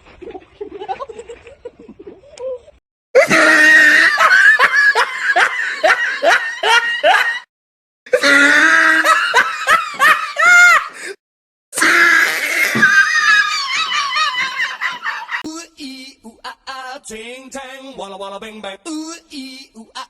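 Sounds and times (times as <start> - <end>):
hearty laughter: 0.5 - 7.5, 8.8 - 11.1, 12.8 - 15.4.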